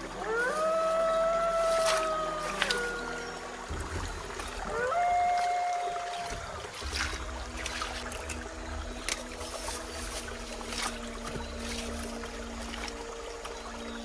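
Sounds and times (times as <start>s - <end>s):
water splashing and trickling: 0.0s - 14.0s
low rumble: 3.0s - 14.0s.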